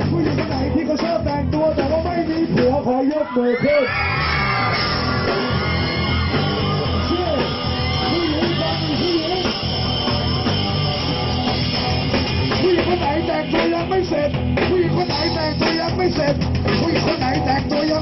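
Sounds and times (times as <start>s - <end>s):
live rock band playing: 0.0s - 18.0s
people yelling: 3.1s - 10.8s.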